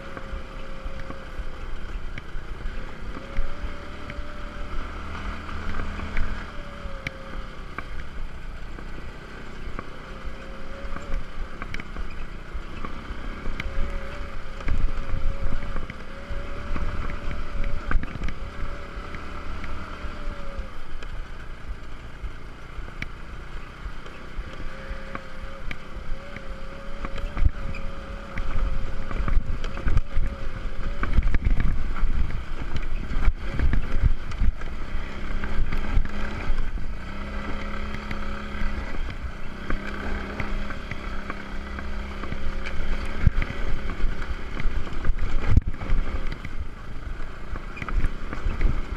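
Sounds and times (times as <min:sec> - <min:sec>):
motor scooter engine whining: 0:00.0 - 0:48.9
wind buffeting microphone: 0:24.6 - 0:48.9.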